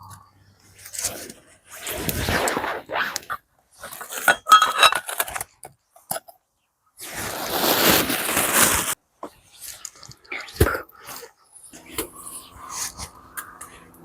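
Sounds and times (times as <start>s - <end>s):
dishware clinking: 4.3s - 5.2s.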